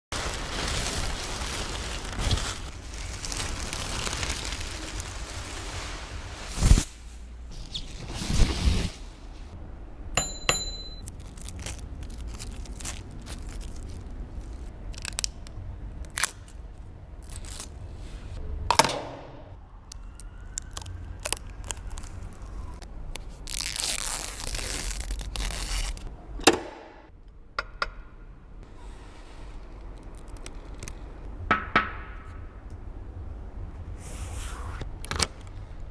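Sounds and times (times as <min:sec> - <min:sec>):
packaging clicks and crinkles: 0:00.2 - 0:05.3, 0:11.0 - 0:15.5, 0:19.9 - 0:26.1
packaging tearing rustle: 0:00.2 - 0:06.9, 0:11.1 - 0:15.4, 0:20.6 - 0:26.1.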